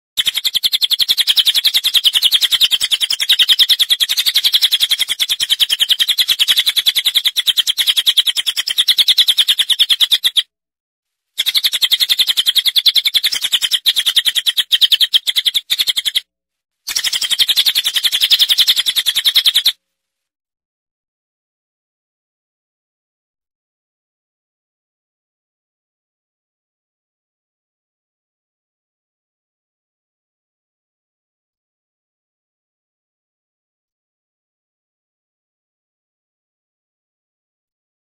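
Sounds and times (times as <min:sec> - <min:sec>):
small songbird chirping: 0:00.2 - 0:10.5, 0:11.4 - 0:16.3, 0:16.9 - 0:19.8.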